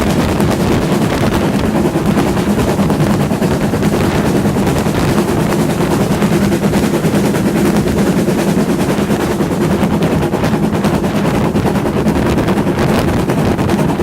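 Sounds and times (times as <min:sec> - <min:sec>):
steam train rumbling and rattling: 0:00.0 - 0:14.0.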